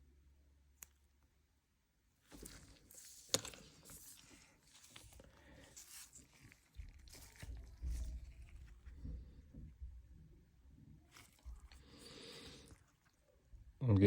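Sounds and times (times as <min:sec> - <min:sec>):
rubbing and scratching of paper card: 0:02.3 - 0:09.8, 0:11.1 - 0:13.2.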